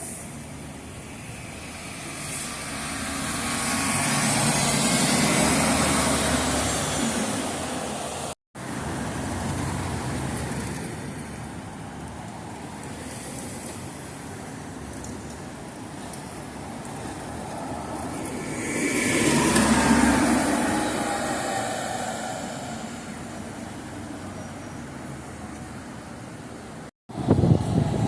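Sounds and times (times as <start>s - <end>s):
street traffic noise: 0.0s - 28.0s
vehicle passing close: 1.8s - 11.0s, 17.1s - 24.2s.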